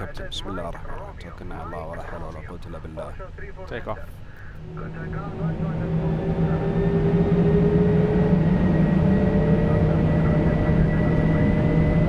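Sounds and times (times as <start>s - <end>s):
jet engines spooling up: 4.4s - 12.0s.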